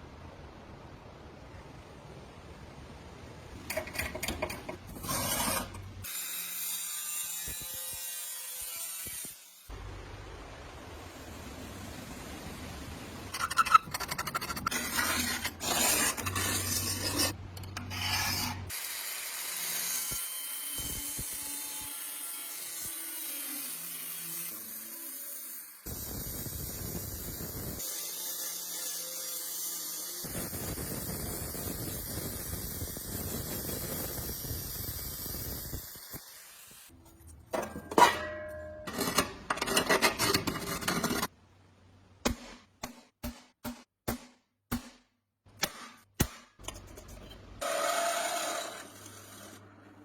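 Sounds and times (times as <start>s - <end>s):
hand rubbing and scraping: 3.7s - 6.0s, 13.4s - 18.7s.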